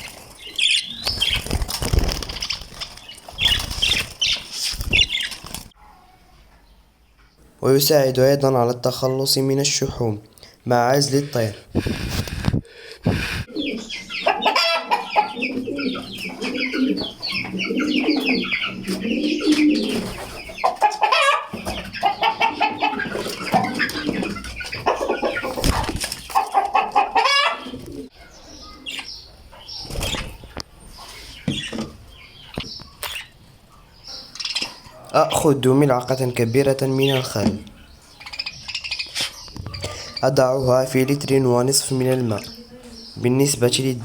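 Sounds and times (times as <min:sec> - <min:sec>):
wings fluttering: 0:00.0 - 0:05.8, 0:16.3 - 0:20.7, 0:22.8 - 0:26.6, 0:29.8 - 0:30.6
domestic birds calling: 0:00.0 - 0:44.0.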